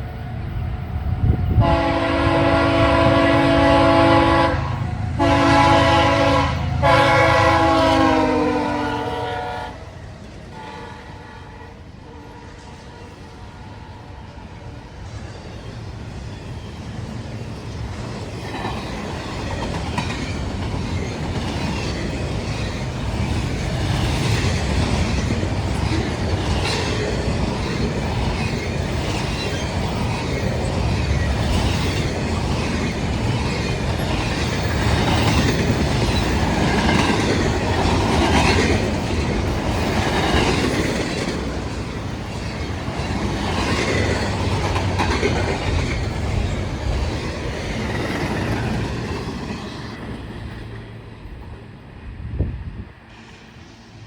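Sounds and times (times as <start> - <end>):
train wheels clattering over rail joints: 17.4 - 51.0.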